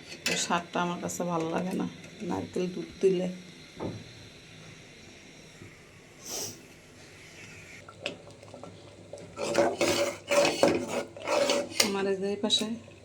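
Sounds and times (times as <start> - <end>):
metal spoon scraping a pot: 9.4 - 12.0.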